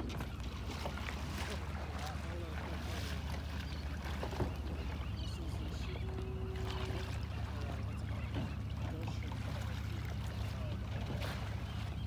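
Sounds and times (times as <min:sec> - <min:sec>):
water swishing against hull: 0:00.0 - 0:12.0.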